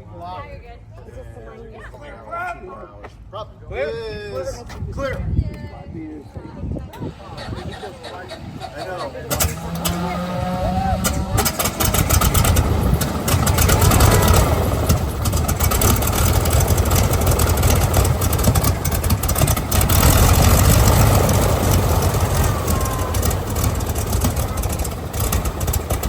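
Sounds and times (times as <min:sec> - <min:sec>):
radial aircraft engine running: 0:07.0 - 0:26.0.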